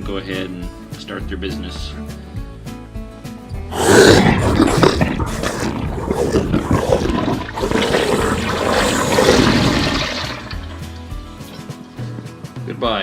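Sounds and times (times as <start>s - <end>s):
toilet flushing: 3.8s - 10.8s.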